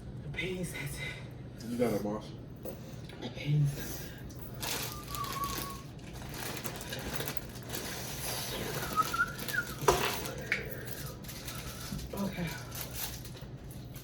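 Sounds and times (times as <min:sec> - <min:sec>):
person whistling through lips: 0:04.8 - 0:05.9, 0:08.8 - 0:09.9.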